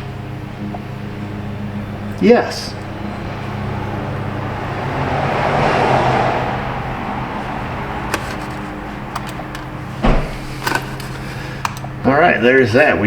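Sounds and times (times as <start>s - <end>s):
steady low hum: 0.0s - 5.2s
passing vehicle whoosh: 2.7s - 10.5s.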